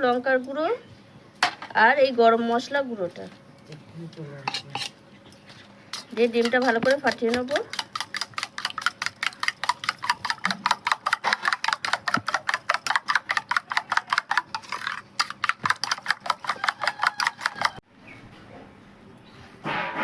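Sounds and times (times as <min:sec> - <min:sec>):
utensil clicking against bowl: 0:06.0 - 0:17.8.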